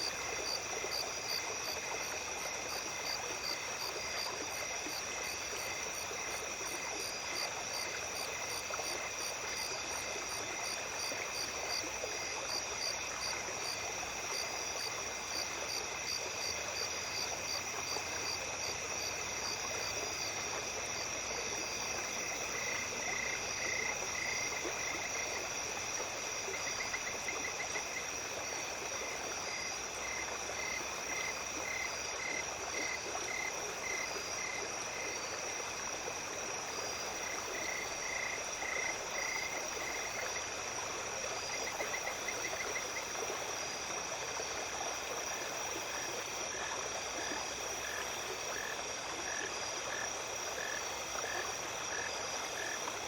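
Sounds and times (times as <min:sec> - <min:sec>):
insects chorus: 0:00.0 - 0:53.0
stream water running: 0:00.0 - 0:53.0
frogs croaking: 0:41.4 - 0:53.0.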